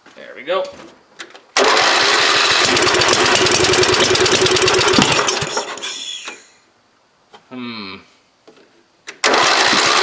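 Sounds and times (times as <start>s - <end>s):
small engine running roughly: 1.6s - 5.8s, 9.2s - 10.0s.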